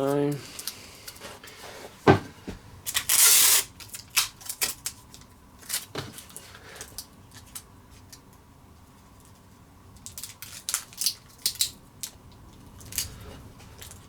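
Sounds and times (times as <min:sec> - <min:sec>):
tape tearing off roll: 0:02.9 - 0:04.8.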